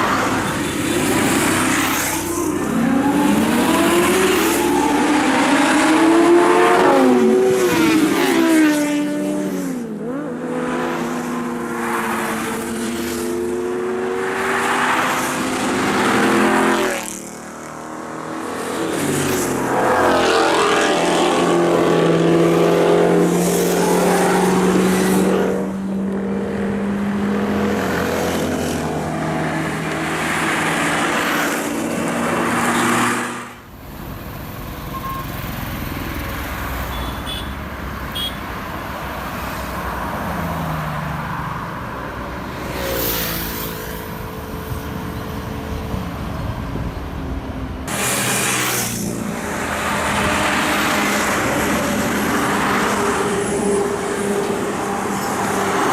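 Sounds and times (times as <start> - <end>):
sports car engines revving: 0.0 - 33.7.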